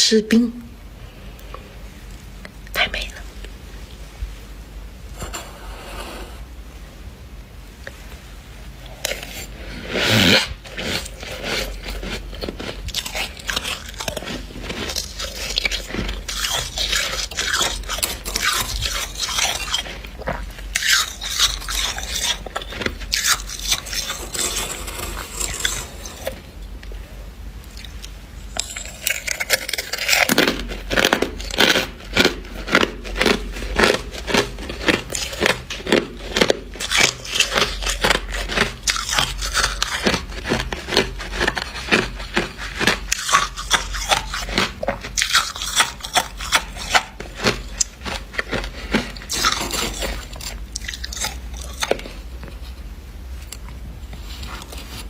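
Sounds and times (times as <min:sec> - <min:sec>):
frost being chewed crunching: 0:08.8 - 0:26.6, 0:27.6 - 0:55.0.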